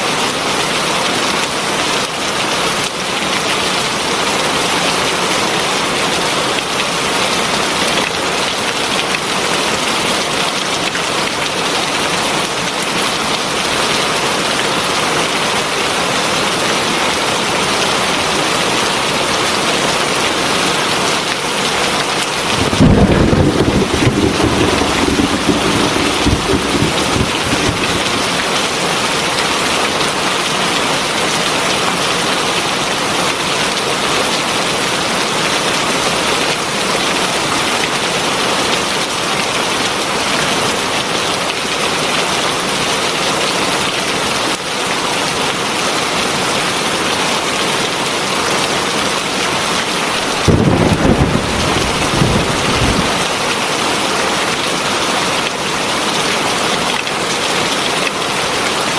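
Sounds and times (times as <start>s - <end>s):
heavy rain: 0.0s - 58.9s
thunder rumbling: 22.3s - 29.5s, 50.2s - 53.3s.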